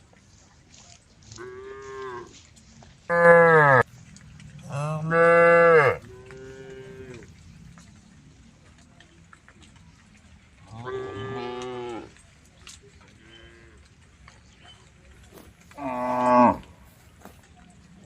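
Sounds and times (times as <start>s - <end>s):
cows mooing: 1.4s - 2.4s, 3.1s - 7.8s, 10.6s - 12.2s, 15.3s - 17.0s.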